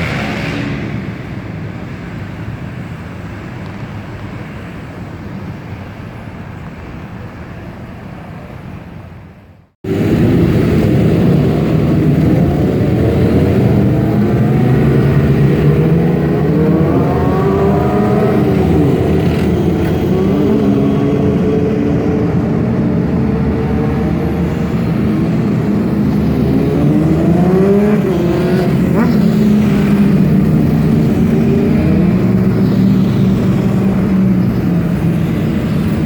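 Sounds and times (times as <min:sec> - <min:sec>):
car engine revving: 0:00.0 - 0:01.4, 0:09.9 - 0:36.0
road traffic rumble: 0:00.0 - 0:36.0.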